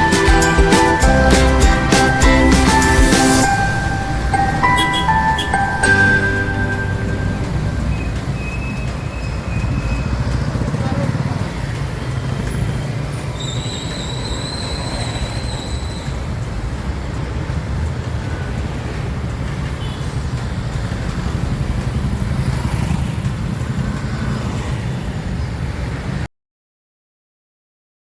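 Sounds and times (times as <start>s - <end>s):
thin high whistling tone: 13.4s - 16.2s.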